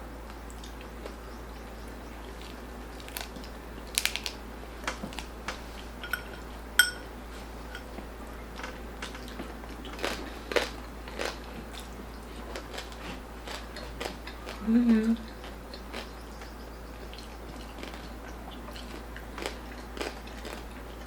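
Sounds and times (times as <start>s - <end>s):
crunchy chewing: 1.8s - 7.9s, 8.6s - 14.7s, 15.3s - 21.0s
ringing clink: 6.0s - 7.1s.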